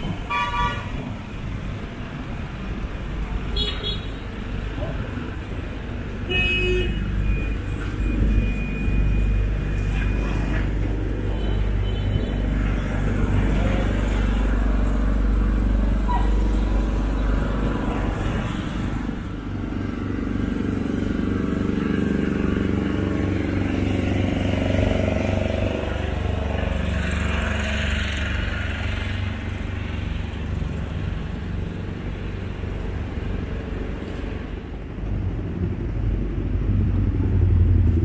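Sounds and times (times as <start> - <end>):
passing cars and motorbikes: 0.0 - 38.0.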